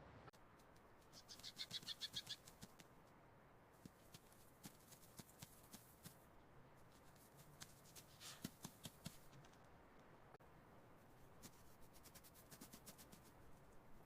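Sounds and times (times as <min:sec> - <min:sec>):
short rustle: 0:06.9 - 0:09.6.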